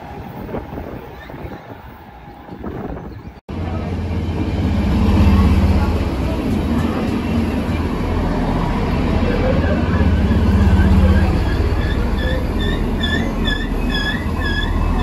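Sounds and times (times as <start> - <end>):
diesel train engine rumble: 0.0 - 15.0
high wavering wheel squeal: 9.2 - 15.0.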